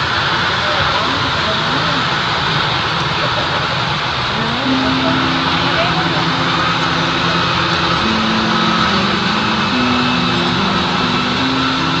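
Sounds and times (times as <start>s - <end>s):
metal lathe running: 4.3s - 12.0s.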